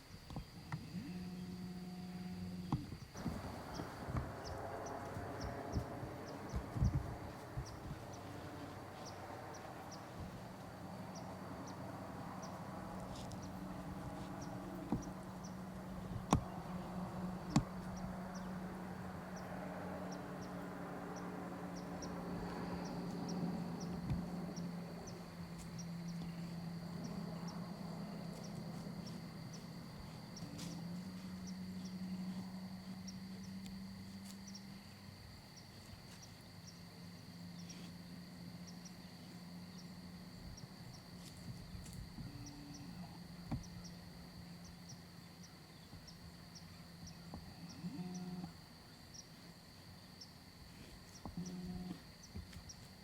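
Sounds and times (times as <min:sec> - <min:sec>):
high insect trill: 0:00.0 - 0:53.0
insects chirping: 0:00.0 - 0:53.0
low drone: 0:00.8 - 0:34.1.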